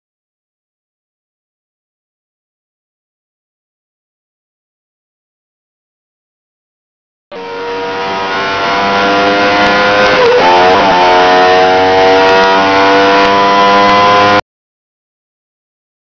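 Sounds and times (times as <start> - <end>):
car engine accelerating: 7.3 - 14.4.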